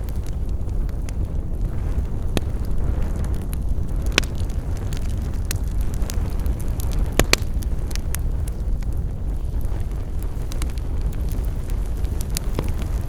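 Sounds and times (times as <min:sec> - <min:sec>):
burning wood crackling and popping: 0:00.0 - 0:13.0
low rumble of campfire: 0:00.0 - 0:13.0.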